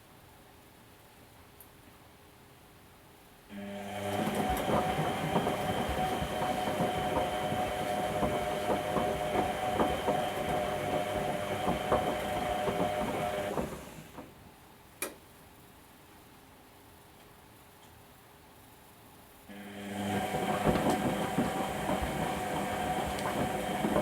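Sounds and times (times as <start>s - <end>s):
washing machine motor hum: 3.5s - 14.4s, 19.5s - 24.0s.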